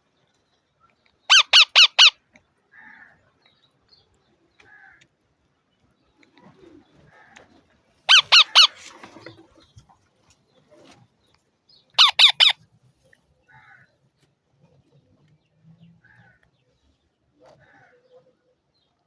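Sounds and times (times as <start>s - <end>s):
parrot calling: 1.3s - 2.2s, 8.1s - 8.8s, 12.0s - 12.6s.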